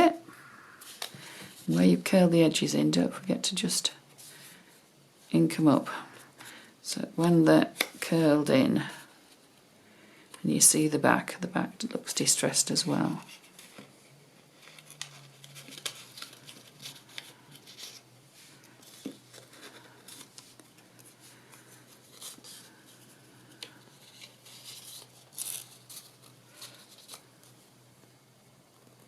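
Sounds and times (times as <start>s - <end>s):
low steady hum: 0.0s - 29.0s
paper rustling: 13.3s - 27.6s.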